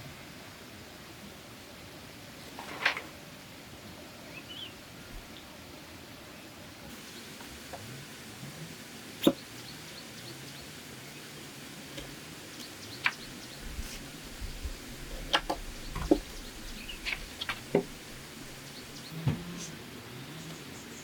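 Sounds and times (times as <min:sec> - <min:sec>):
bamboo knocking and clicking: 0:15.2 - 0:16.4, 0:17.0 - 0:18.1.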